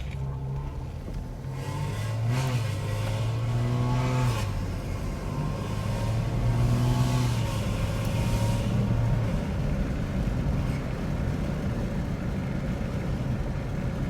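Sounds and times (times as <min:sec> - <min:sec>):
car engine drone: 0:00.0 - 0:14.0.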